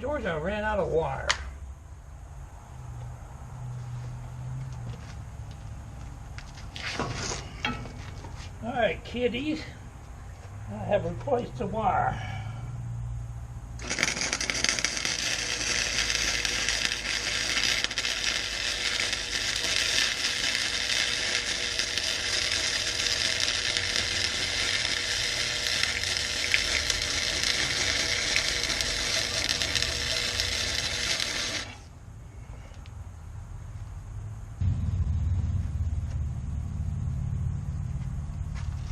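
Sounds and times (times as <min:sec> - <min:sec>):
welder arc crackling: 0:13.7 - 0:31.9.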